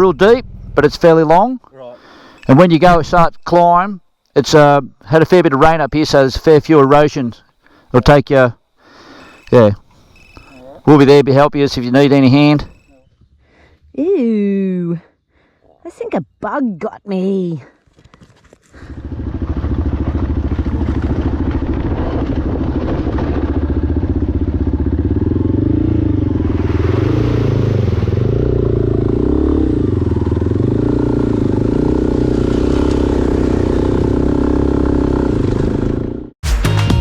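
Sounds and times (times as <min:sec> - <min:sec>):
motorcycle engine running: 0:00.0 - 0:01.5, 0:18.7 - 0:36.4.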